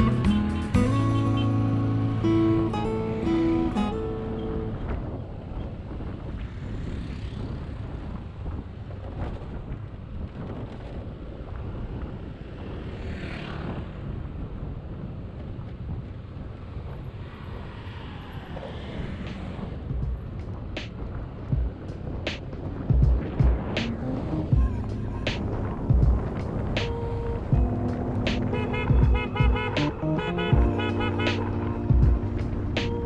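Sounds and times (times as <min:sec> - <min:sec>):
motorcycle engine and road rumble: 0:00.0 - 0:33.0
wind on microphone: 0:00.0 - 0:33.0
vehicle passing whoosh: 0:12.0 - 0:15.0, 0:16.3 - 0:22.8, 0:23.6 - 0:33.0.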